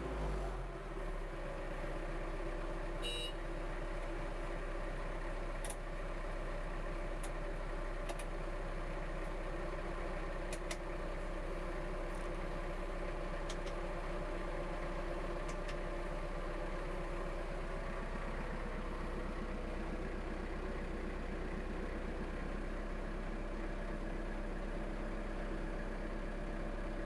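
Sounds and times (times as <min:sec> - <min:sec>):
tractor diesel engine idling: 0:00.0 - 0:27.0
short high beep: 0:03.0 - 0:03.4.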